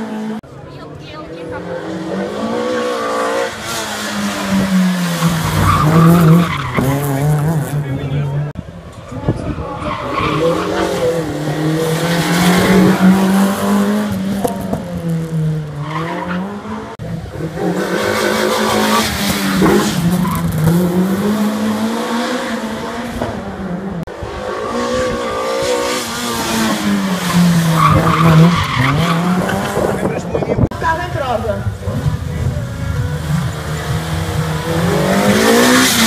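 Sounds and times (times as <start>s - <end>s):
race car engine revving: 0.0s - 36.0s.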